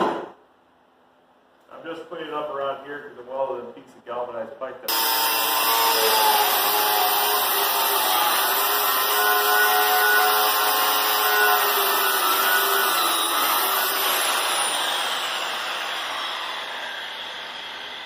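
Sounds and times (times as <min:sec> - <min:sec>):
angle grinder grinding metal: 0:04.9 - 0:18.0.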